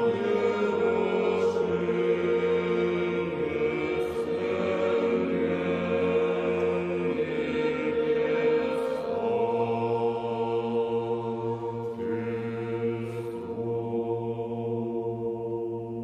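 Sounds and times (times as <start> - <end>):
choir chanting held chords: 0.0 - 16.0.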